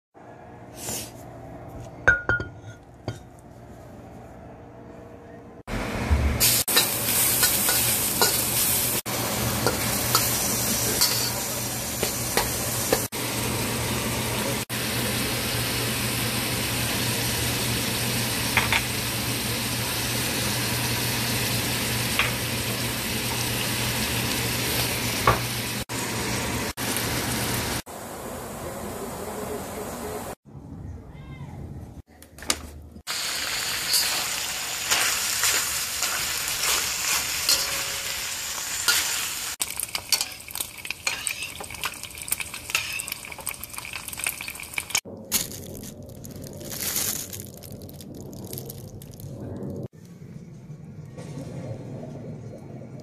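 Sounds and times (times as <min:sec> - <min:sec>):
meat sizzling in a pan: 0:06.4 - 0:27.8, 0:33.1 - 0:45.1.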